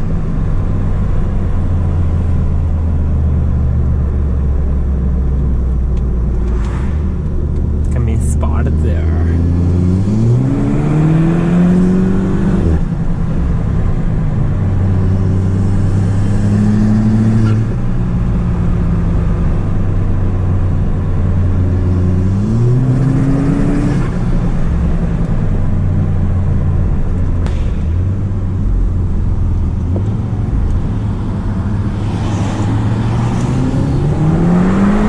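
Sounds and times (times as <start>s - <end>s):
turbocharged car engine accelerating: 4.0s - 25.5s, 27.5s - 35.0s.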